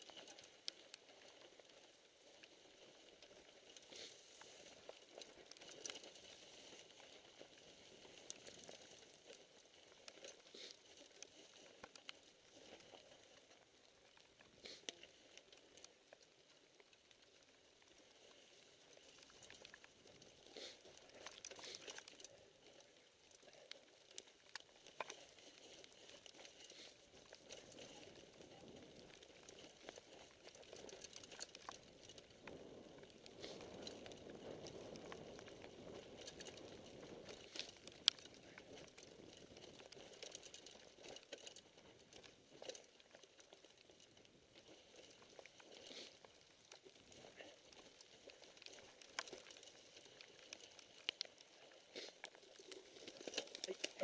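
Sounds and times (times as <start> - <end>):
mountain bike rattling on trail: 0.0 - 54.0
rain: 0.0 - 54.0.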